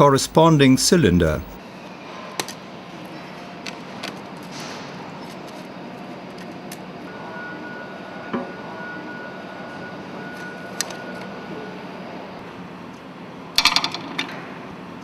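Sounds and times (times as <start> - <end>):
faint high steady tone: 0.0 - 1.6
machinery hum: 0.0 - 1.6.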